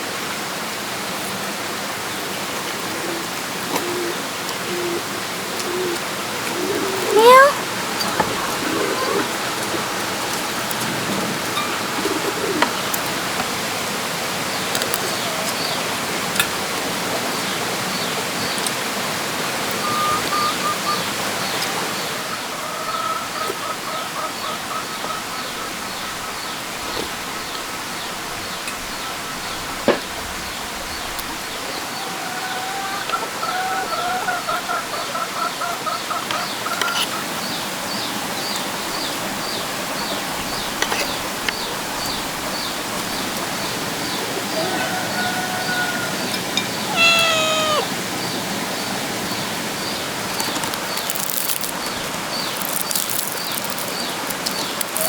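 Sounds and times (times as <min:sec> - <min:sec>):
birds chirping: 0:02.9 - 0:55.0
wavering bird calls: 0:03.8 - 0:10.6, 0:38.9 - 0:55.0.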